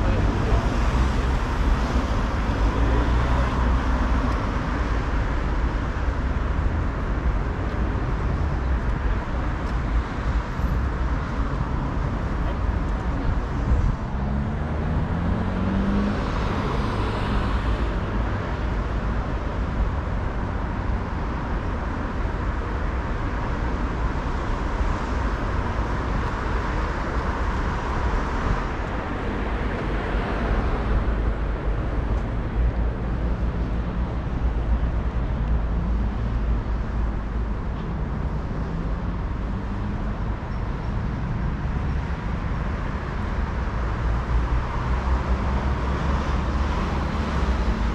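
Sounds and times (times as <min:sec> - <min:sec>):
cars passing: 0:00.0 - 0:47.9
vehicle engine accelerating: 0:13.9 - 0:17.6.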